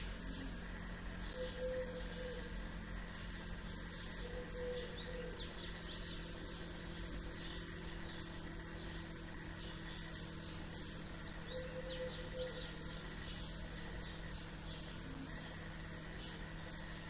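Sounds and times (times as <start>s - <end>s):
small birds chirping: 0.0s - 17.0s
steady low hum: 0.0s - 17.0s
low two-part bird call: 1.3s - 2.6s, 4.2s - 5.8s, 11.5s - 13.0s.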